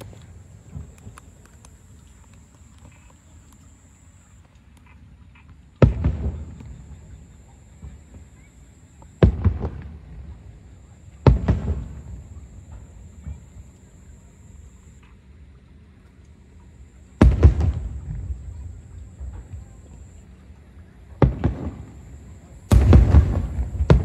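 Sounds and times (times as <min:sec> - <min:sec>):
small firework cracks: 0:00.0 - 0:05.0, 0:05.8 - 0:15.1, 0:16.9 - 0:20.2, 0:21.2 - 0:24.0
firework shells booming: 0:05.8 - 0:14.6, 0:17.2 - 0:20.2, 0:21.2 - 0:24.0.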